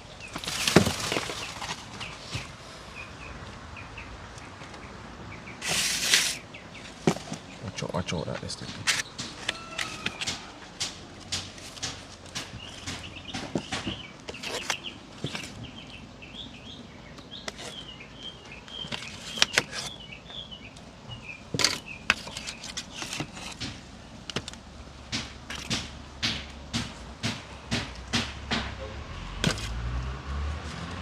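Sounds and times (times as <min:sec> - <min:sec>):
bird chirping: 0:00.0 - 0:10.6, 0:12.3 - 0:23.4
sharp clicks and knocks: 0:08.3 - 0:15.6, 0:21.5 - 0:28.8.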